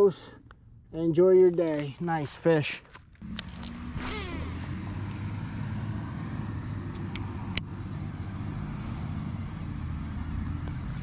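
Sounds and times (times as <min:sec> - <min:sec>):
vehicle engine humming: 0:03.2 - 0:11.0.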